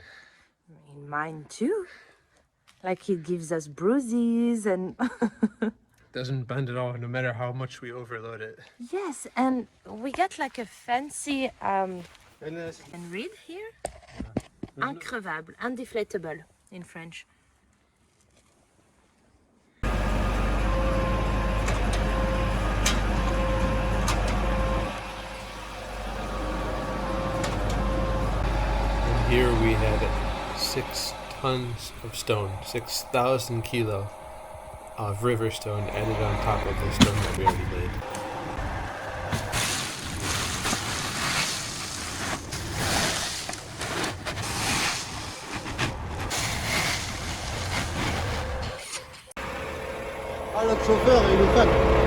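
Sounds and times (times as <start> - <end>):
truck engine rumbling: 19.8 - 41.3, 44.4 - 52.0.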